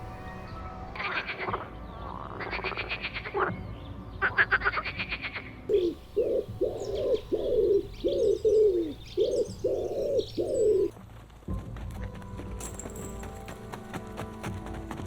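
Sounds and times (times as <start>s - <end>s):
faint small birds chirping: 5.7s - 10.9s
pigeon cooing: 5.7s - 10.9s.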